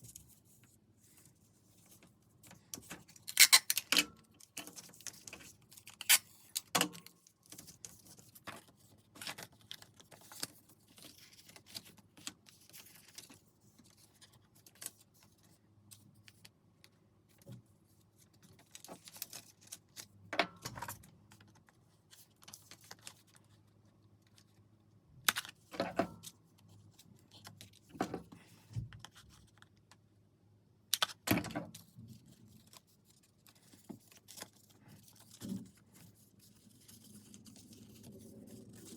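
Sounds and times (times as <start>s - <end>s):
paper rustling: 31.8s - 38.9s.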